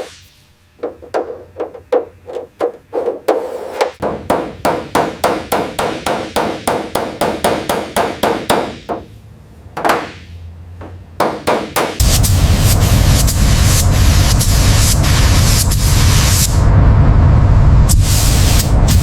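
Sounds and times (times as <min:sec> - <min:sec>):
loud steady hiss: 0:00.0 - 0:02.2, 0:11.4 - 0:19.0
rapid hammer blows: 0:00.8 - 0:09.1, 0:11.2 - 0:16.2.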